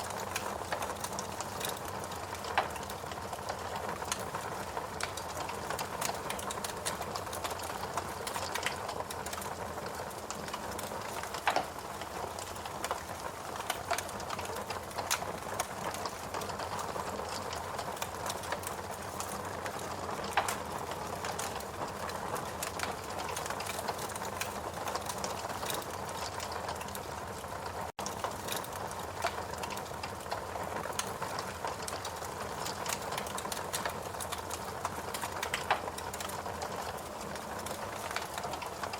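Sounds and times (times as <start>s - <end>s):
fireplace crackling: 0.0s - 38.9s
sharp pops and clicks: 10.3s - 19.3s.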